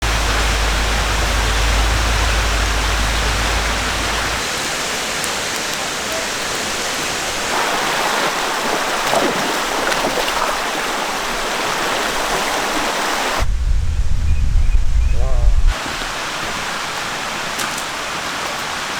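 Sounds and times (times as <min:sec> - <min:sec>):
low rumble: 0:00.0 - 0:04.4, 0:13.4 - 0:15.8
stream flowing over rocks: 0:00.0 - 0:13.4.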